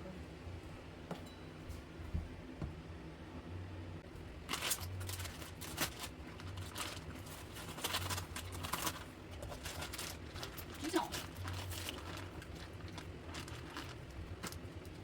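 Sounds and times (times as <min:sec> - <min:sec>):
low steady hum: 0:00.0 - 0:15.0
rustling and crinkling handling: 0:04.2 - 0:15.0.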